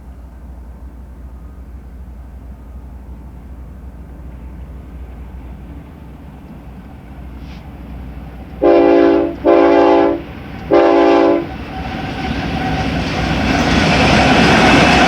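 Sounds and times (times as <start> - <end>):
train rumble and rail clatter: 0.0 - 15.0
locomotive air horn blasts: 8.6 - 11.5.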